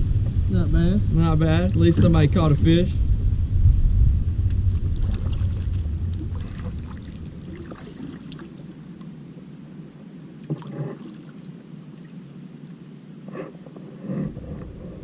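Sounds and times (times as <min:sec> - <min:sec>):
faint water sounds: 0:00.0 - 0:03.4, 0:04.4 - 0:15.0
low rumble: 0:00.0 - 0:08.5
small knocks and splashes: 0:04.7 - 0:08.5.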